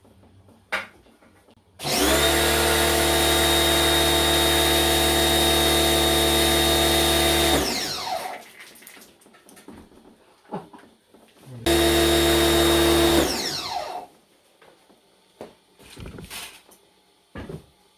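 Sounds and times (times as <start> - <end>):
power tool motor whine: 1.8 - 8.4, 11.6 - 14.1.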